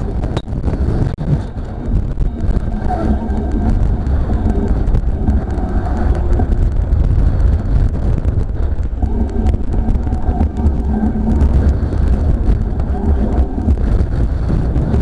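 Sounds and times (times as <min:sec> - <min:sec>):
gusty wind buffeting microphone: 0:00.0 - 0:15.0
small clicks and ticks: 0:00.0 - 0:15.0.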